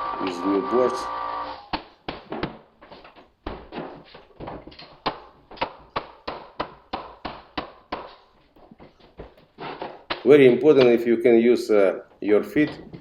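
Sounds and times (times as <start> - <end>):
floorboards tapping into place: 1.7 - 11.0.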